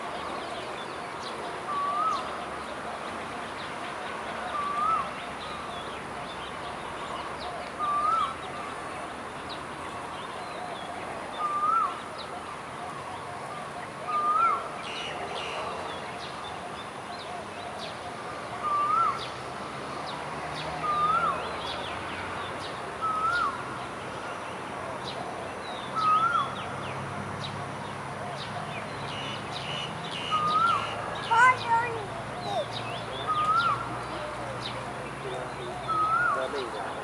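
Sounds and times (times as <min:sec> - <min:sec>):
distant birds chirping: 0:00.0 - 0:37.0
bird whistled call: 0:01.7 - 0:02.4, 0:04.5 - 0:05.6, 0:07.8 - 0:08.4, 0:11.4 - 0:12.0, 0:14.1 - 0:15.1, 0:18.6 - 0:19.3, 0:20.8 - 0:21.4, 0:23.0 - 0:23.6, 0:25.9 - 0:26.6, 0:29.1 - 0:31.6, 0:32.4 - 0:33.9, 0:35.8 - 0:36.5.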